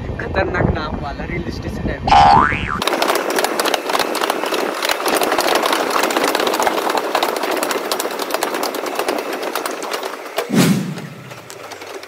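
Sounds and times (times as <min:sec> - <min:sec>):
train rumbling and rattling: 0:02.8 - 0:12.0.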